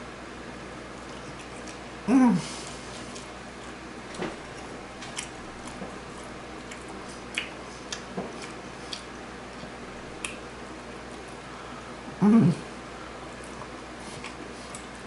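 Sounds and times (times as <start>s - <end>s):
steady background hum: 0.0s - 15.0s
person chewing food: 0.8s - 12.0s, 13.1s - 15.0s
wet mouth clicks and smacks: 6.6s - 9.1s.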